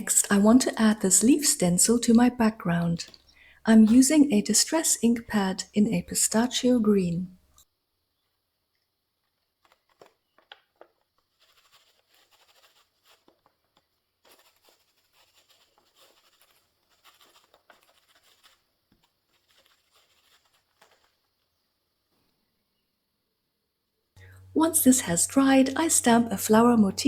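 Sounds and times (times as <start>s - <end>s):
ink blending tool rubbing on paper: 11.3s - 13.5s, 14.2s - 21.2s.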